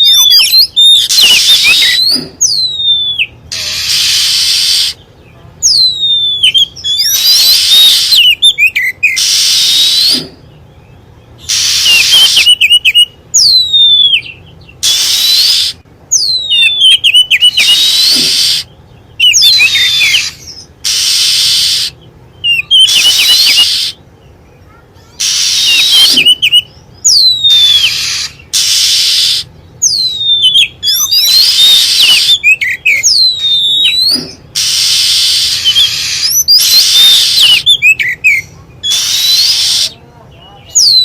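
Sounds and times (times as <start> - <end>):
harsh raspy bird churrs: 0.0 - 10.6, 11.4 - 24.0, 24.7 - 40.0
bird whistles sliding down: 38.9 - 40.0.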